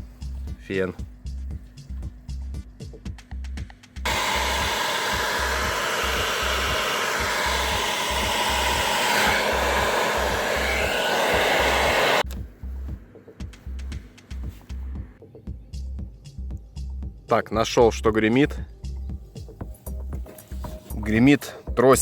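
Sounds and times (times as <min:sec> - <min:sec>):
music with low beat: 0:00.0 - 0:17.3, 0:18.6 - 0:22.0
hair dryer blowing: 0:04.1 - 0:12.2.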